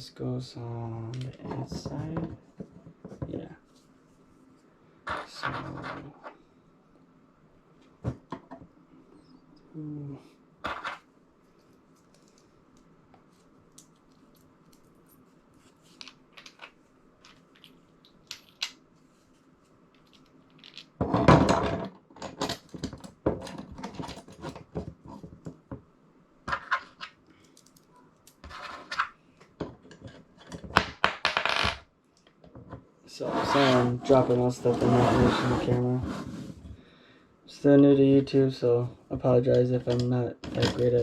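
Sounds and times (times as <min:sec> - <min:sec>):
faint steady hum: 0:00.0 - 0:41.0
small parts clicking and knocking: 0:15.9 - 0:18.8, 0:19.9 - 0:25.8, 0:26.5 - 0:32.8.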